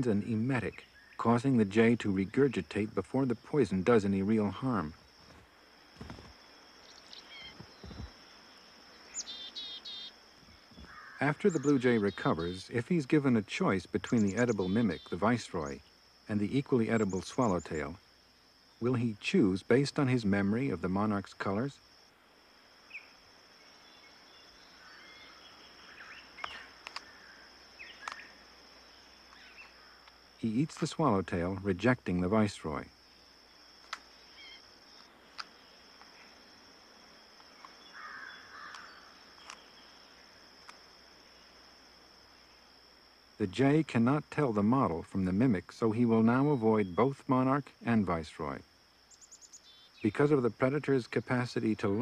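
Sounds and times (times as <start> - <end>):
bird chirps: 0.0 - 2.8, 6.0 - 12.9, 13.9 - 18.0, 22.8 - 30.0, 33.1 - 34.7, 37.5 - 40.2, 49.1 - 50.3
high insect drone: 0.0 - 52.0
soft low thumps: 7.5 - 8.2
sharp clicks: 26.4 - 27.1, 33.8 - 34.1, 38.7 - 39.7.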